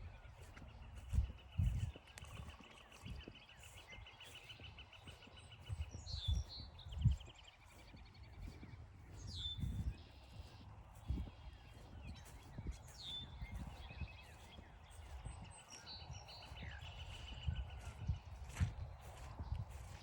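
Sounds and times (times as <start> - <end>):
footsteps on forest trail: 0.0 - 20.0.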